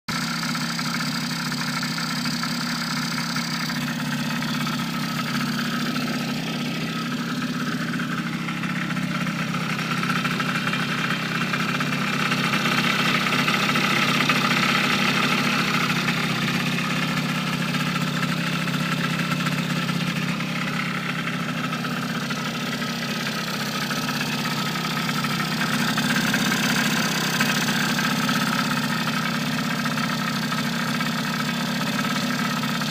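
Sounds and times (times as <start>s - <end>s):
engine idling: 0.1s - 32.9s.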